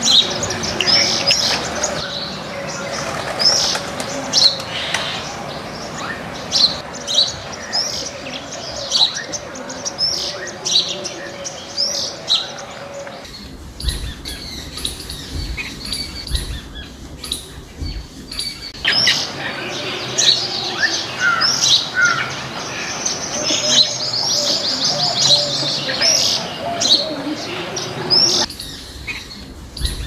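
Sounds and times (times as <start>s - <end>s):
garden birds chirping: 0.0s - 30.0s
low rumble: 13.3s - 19.0s.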